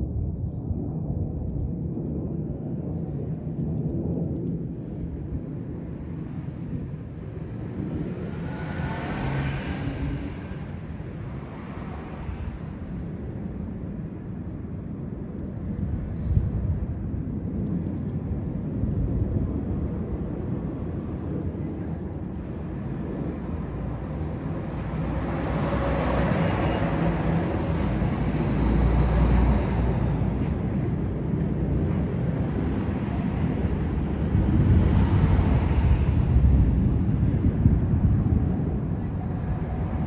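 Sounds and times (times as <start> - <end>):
passing vehicles rumbling: 7.4 - 13.6, 22.9 - 40.0.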